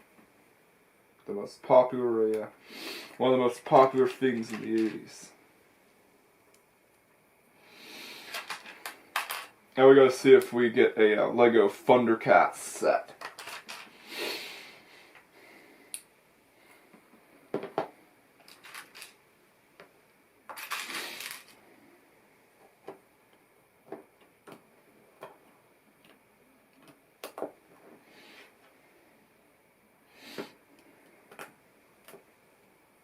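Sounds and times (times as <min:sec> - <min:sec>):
plastic toy bricks clattering: 0:03.6 - 0:05.0, 0:08.3 - 0:09.5, 0:13.1 - 0:13.9, 0:18.4 - 0:19.2, 0:20.5 - 0:21.6.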